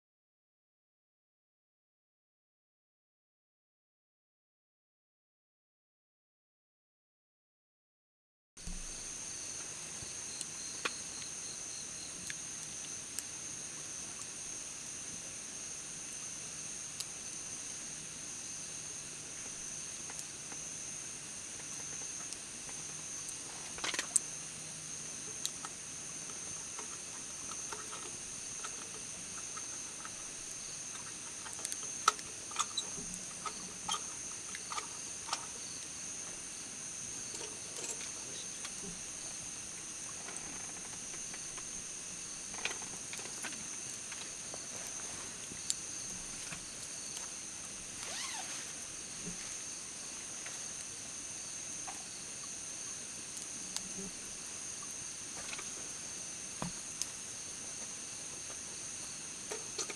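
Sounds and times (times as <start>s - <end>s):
small clicks and knocks: 30.9s - 35.5s, 59.5s - 59.9s
insects singing: 48.0s - 50.2s.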